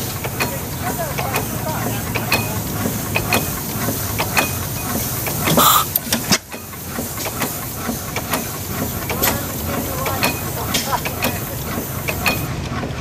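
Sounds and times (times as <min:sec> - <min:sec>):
old stationary engines running: 0:00.0 - 0:13.0
burst of hiss: 0:05.5 - 0:06.0.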